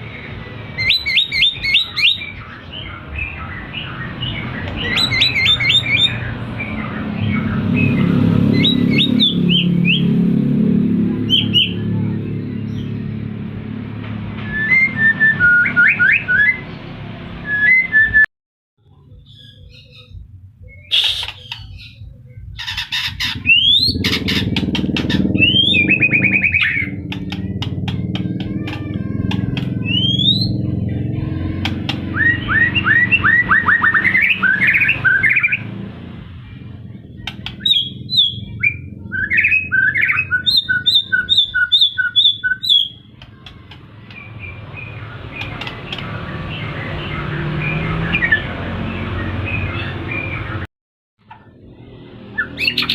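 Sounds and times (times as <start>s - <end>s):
songbird whistling and trilling: 0.8s - 10.1s, 14.4s - 16.7s, 17.4s - 18.2s, 19.2s - 27.7s, 29.6s - 30.6s, 32.1s - 35.6s, 37.2s - 43.1s.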